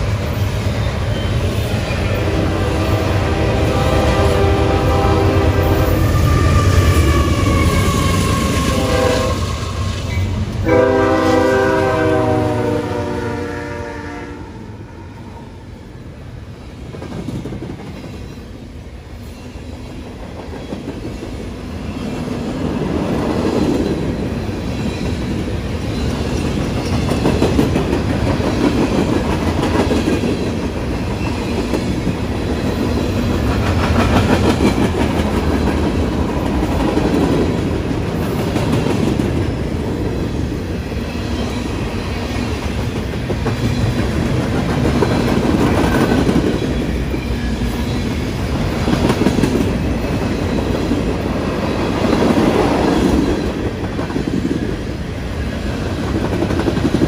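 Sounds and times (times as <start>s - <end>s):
locomotive air horn blasts: 2.2s - 6.9s, 8.4s - 9.6s, 10.6s - 14.6s
train wheels clattering on rails: 16.8s - 18.6s, 19.4s - 57.0s.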